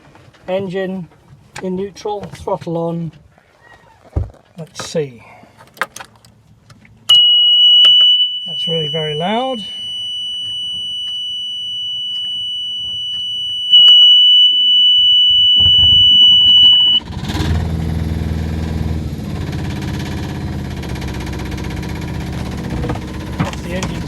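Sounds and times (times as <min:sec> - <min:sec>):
warning buzzer high tone: 0:07.1 - 0:17.0
boat engine idling: 0:17.0 - 0:24.0
starter cranking engine: 0:17.0 - 0:24.0.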